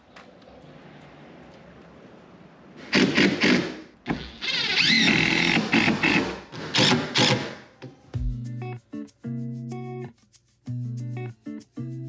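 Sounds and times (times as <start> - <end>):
power tool working on wood: 2.9 - 7.6.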